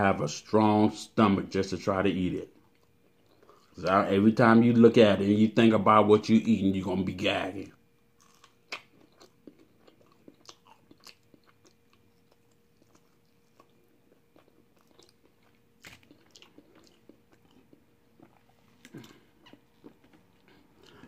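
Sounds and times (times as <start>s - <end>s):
person chewing food: 2.5s - 3.8s, 8.2s - 21.0s.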